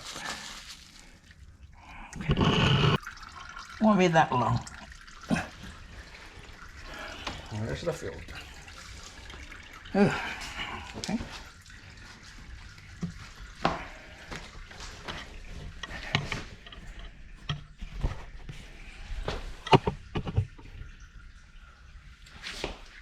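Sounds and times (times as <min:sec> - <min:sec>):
clicks and taps of oil filter parts: 0:19.6 - 0:20.9.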